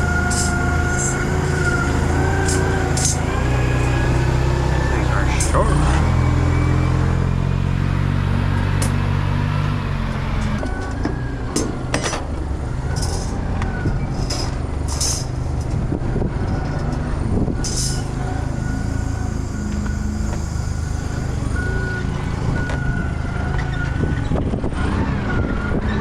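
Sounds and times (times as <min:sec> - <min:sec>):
heavy vehicle engine running: 0:00.0 - 0:26.0.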